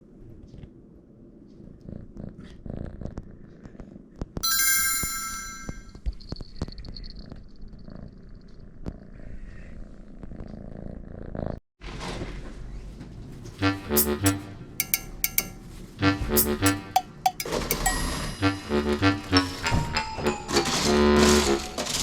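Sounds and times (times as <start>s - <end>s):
bright ringing tone: 4.4s - 5.9s, 14.0s - 15.6s, 16.4s - 22.0s
kitten purring: 7.7s - 11.6s.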